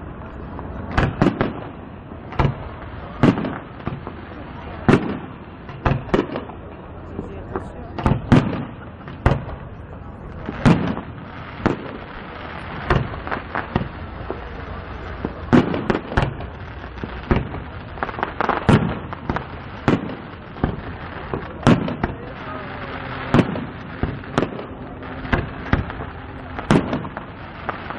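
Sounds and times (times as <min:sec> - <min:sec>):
firework shells bursting: 0:10.4 - 0:27.9.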